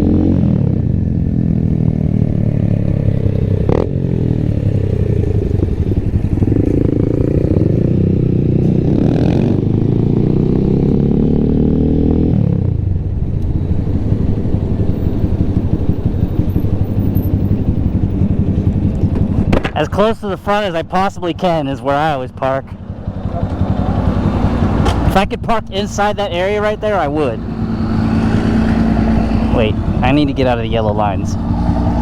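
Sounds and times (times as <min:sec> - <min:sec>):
small motorcycle engine running: 0:01.0 - 0:11.6, 0:13.4 - 0:19.6, 0:22.8 - 0:25.2.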